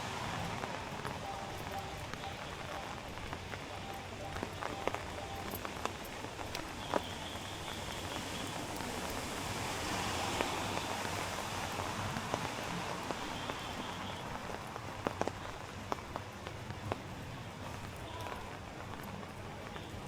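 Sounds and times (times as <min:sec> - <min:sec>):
rain on street: 0:00.0 - 0:20.0.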